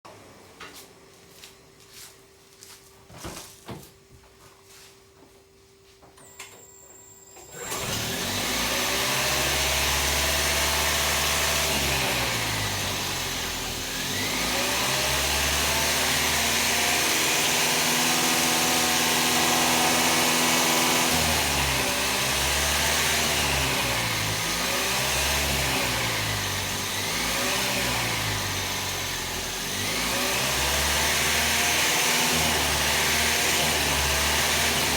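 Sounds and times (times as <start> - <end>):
car engine intake roar: 7.6 - 34.9.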